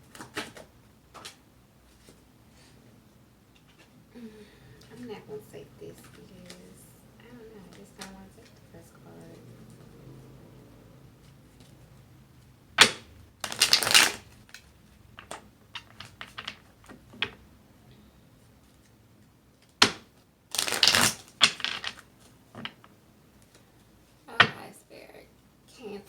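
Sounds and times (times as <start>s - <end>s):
cards being shuffled: 0.0s - 2.2s, 5.9s - 6.8s, 7.6s - 8.6s, 12.4s - 17.4s, 18.6s - 23.6s.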